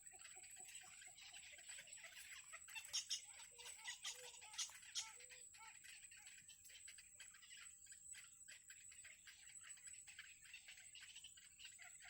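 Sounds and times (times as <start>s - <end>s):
nestling birds cheeping: 0.0s - 12.0s.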